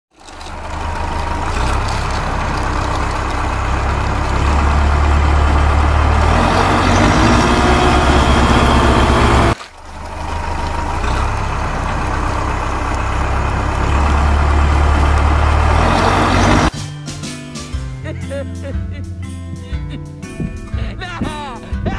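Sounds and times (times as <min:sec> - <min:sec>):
heavy engine humming: 0:00.1 - 0:16.8.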